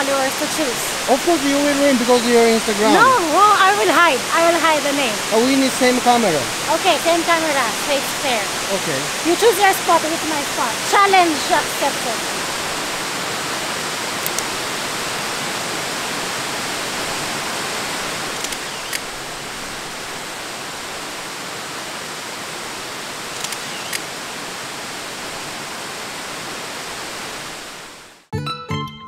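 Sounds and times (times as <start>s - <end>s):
waterfall rushing: 0.0s - 28.3s
short clicks: 23.4s - 24.0s.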